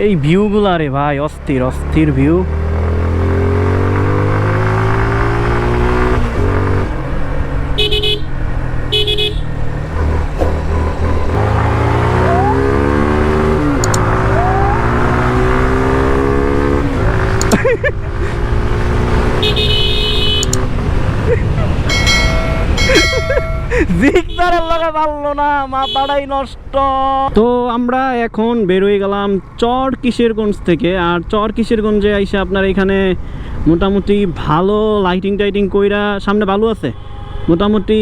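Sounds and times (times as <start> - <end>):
motorcycle engine shifting gears: 1.4 - 23.8
horn beeping: 7.8 - 9.6, 19.3 - 20.7, 21.7 - 25.0.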